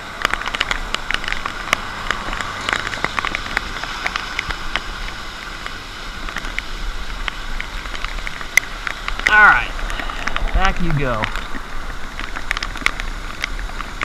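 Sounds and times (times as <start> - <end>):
sharp raindrop ticks: 0.0 - 14.0
steady rain falling: 0.0 - 14.0.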